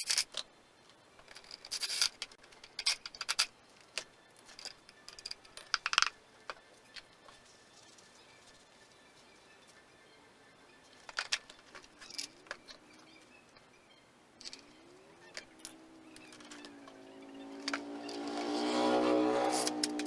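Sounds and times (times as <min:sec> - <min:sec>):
sharp clicks and knocks: 0:19.5 - 0:20.0.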